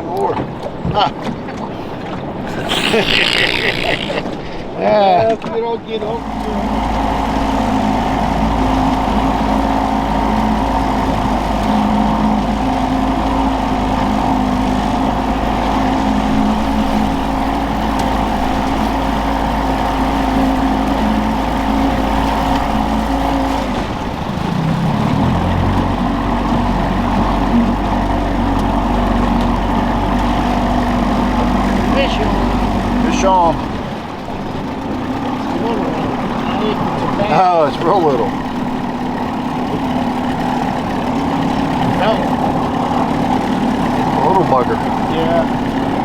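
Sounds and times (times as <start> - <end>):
outboard motor running: 0.0 - 46.0.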